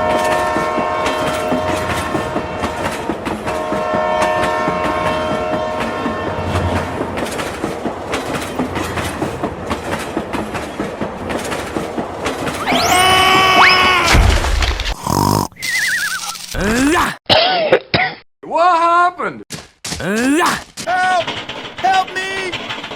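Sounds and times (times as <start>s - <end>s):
train horn blast: 3.6s - 6.5s
train wheels clickety-clack: 6.6s - 12.3s.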